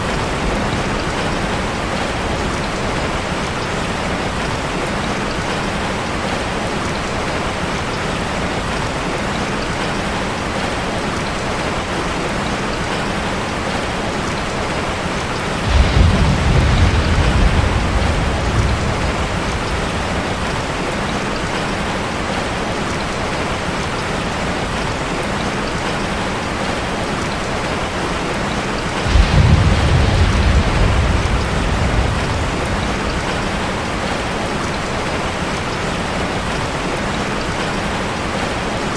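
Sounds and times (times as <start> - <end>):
rain on a metal roof: 0.0 - 38.9
low rolls of thunder: 15.5 - 21.7, 28.9 - 35.1.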